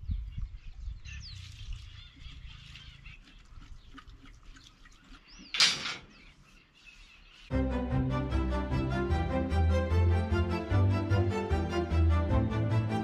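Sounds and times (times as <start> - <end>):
birds chirping and calling: 0.0 - 7.5.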